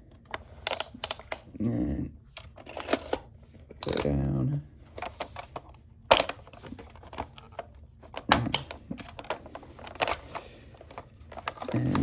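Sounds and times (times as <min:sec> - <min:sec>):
sharp plastic clacks: 0:00.2 - 0:01.5
plastic toy clicks and taps: 0:00.7 - 0:01.4, 0:03.8 - 0:04.1.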